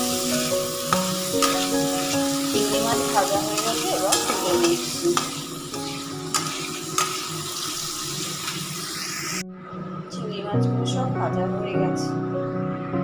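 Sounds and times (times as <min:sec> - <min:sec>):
prawns sizzling in a wok: 0:00.0 - 0:09.4
spatula scraping and tapping pan: 0:00.9 - 0:07.3.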